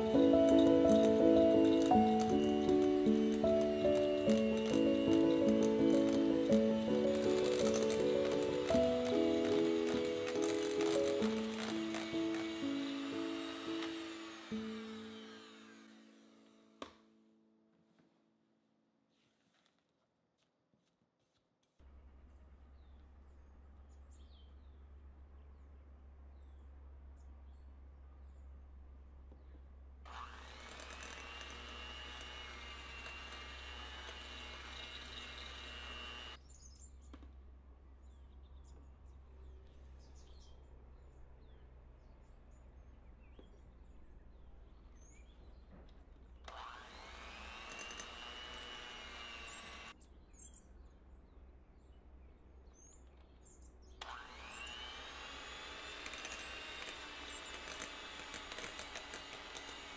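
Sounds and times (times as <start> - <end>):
electric mixer motor whirring: 0.0 - 17.0, 30.1 - 36.4, 46.5 - 50.0, 54.0 - 59.9.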